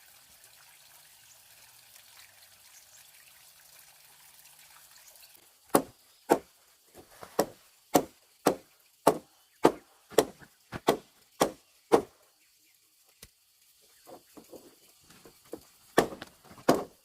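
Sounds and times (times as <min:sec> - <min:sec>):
blade chopping: 0:05.8 - 0:12.1, 0:16.0 - 0:17.0.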